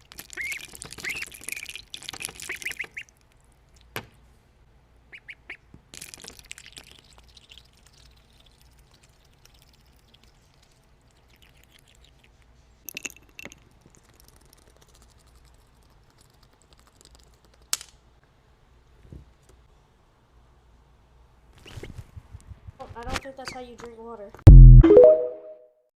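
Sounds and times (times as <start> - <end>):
low hum: 24.5 - 25.6.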